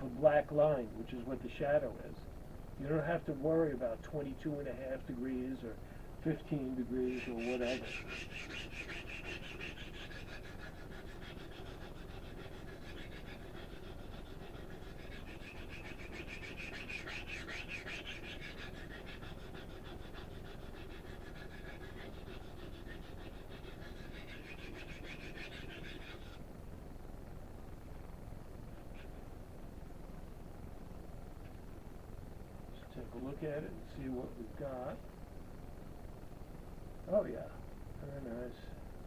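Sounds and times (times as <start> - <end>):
knife rasping on sharpening stone: 6.4 - 26.4.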